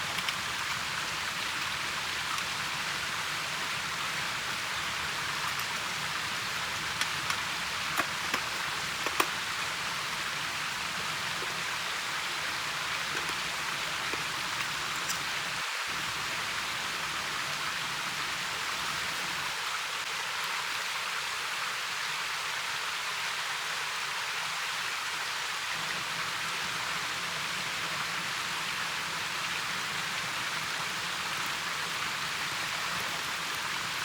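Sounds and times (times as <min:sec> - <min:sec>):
steady hiss of water: 0:00.0 - 0:34.0.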